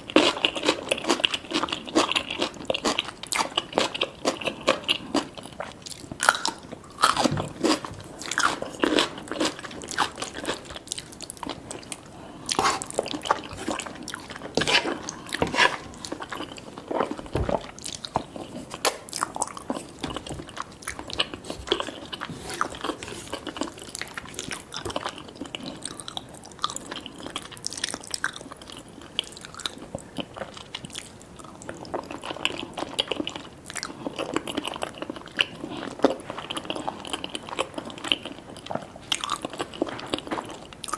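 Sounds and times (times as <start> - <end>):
chewing and crunching food: 0.0 - 40.9.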